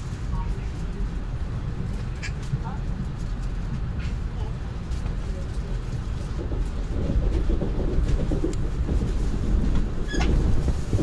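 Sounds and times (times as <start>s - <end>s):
train wheels rumbling on rail: 0.0s - 11.0s
knocking and rattling: 6.4s - 11.0s.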